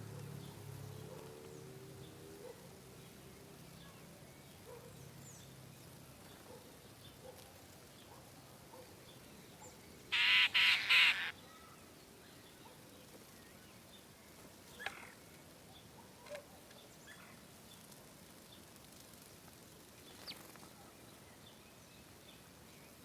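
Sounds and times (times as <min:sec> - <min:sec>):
bird harsh calls: 0:10.1 - 0:11.4
faint short bird calls: 0:10.1 - 0:11.8.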